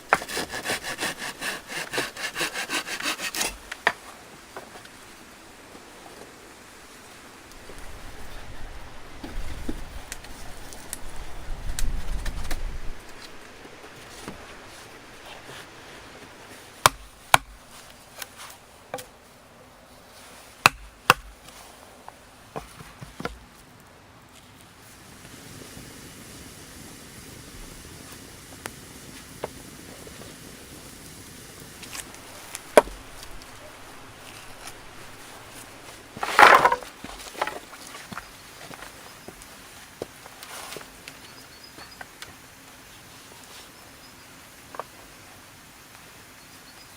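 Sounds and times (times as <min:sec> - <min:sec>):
wood cracking: 0:00.0 - 0:04.0, 0:16.8 - 0:19.2, 0:20.6 - 0:21.6, 0:31.8 - 0:41.2
wood knocking: 0:32.4 - 0:33.7, 0:34.3 - 0:38.2.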